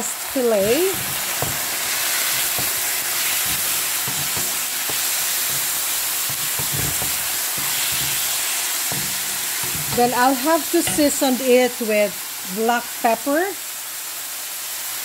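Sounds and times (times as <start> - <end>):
chicken sizzling in hot oil: 0.0 - 15.0
wooden spatula scraping pan: 0.4 - 11.5.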